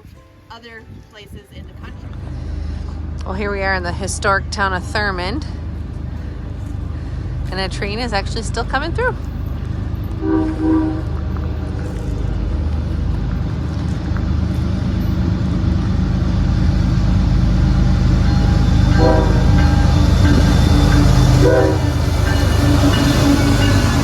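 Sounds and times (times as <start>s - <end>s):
train rumble: 0.0s - 24.0s
train horn blasts: 10.1s - 12.2s, 17.0s - 24.0s.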